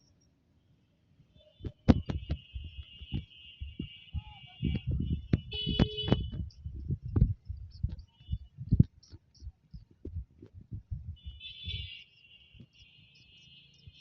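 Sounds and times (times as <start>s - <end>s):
phone microphone handling thumps: 1.6s - 11.3s.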